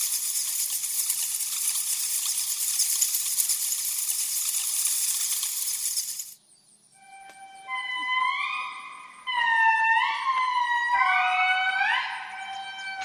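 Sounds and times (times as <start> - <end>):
fruit bats chattering: 0.0 - 6.4.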